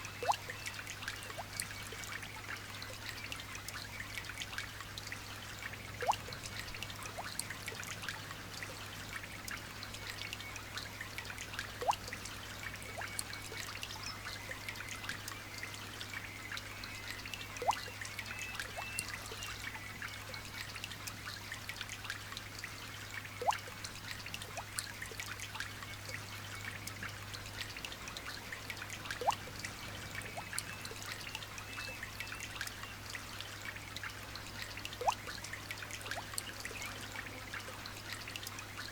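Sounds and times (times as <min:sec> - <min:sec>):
light rain dripping and trickling: 0:00.0 - 0:38.9
sharp loud drip: 0:23.4 - 0:23.7.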